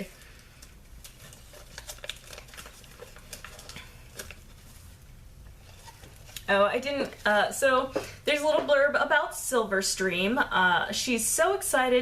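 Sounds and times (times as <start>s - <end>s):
paper leaflet rustling: 0.2s - 7.4s.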